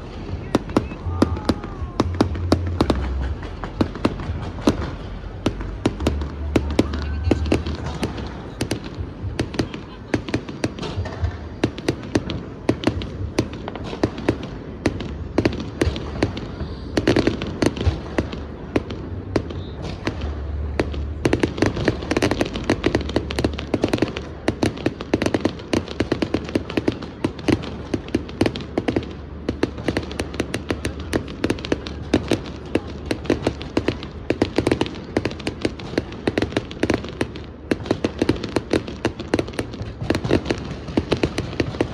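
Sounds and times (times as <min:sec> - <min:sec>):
low rumble: 0:00.0 - 0:09.4
fireworks bangs and crackles: 0:00.0 - 0:41.9
murmur of crowd voices: 0:00.0 - 0:41.9.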